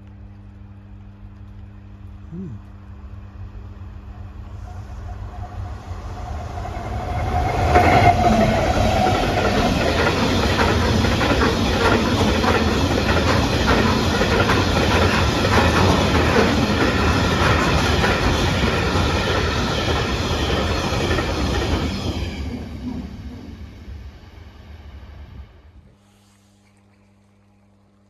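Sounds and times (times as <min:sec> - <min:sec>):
diesel locomotive: 0:03.0 - 0:26.0
train wheels clattering over rail joints: 0:06.9 - 0:23.4.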